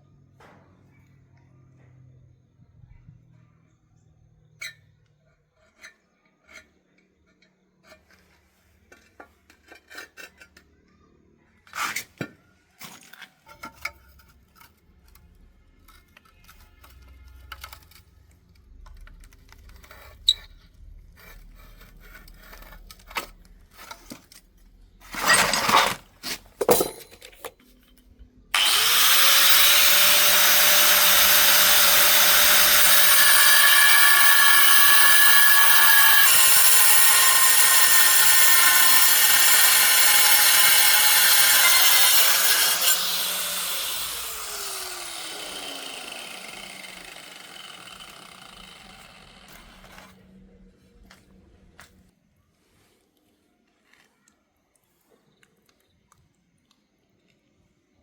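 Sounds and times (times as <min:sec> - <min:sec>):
tool knocks and scrapes: 0:25.0 - 0:27.8
power tool motor whining: 0:25.1 - 0:26.0, 0:28.6 - 0:50.2.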